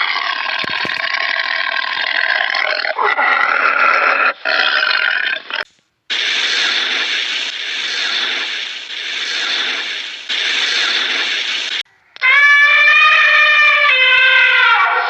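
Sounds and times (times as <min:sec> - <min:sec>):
animal rasping calls: 0:00.0 - 0:05.6, 0:12.0 - 0:15.0.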